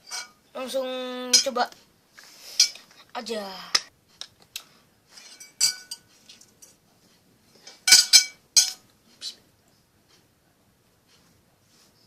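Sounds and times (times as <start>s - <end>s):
cutlery clinking on a plate: 0.0s - 0.4s, 5.1s - 6.8s, 7.7s - 8.8s.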